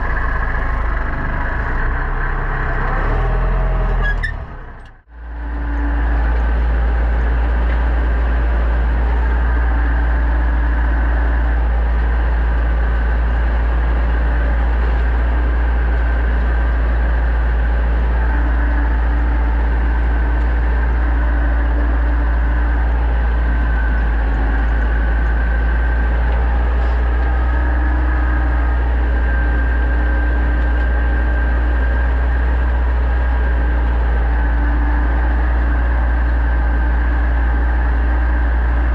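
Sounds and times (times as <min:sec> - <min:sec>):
tractor engine droning: 0:00.0 - 0:38.9.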